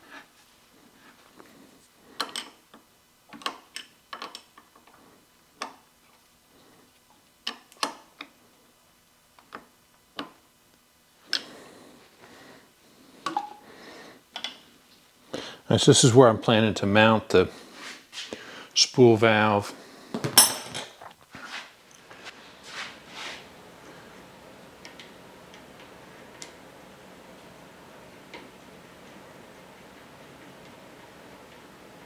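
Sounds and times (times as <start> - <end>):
soft rustling: 21.0 - 23.5.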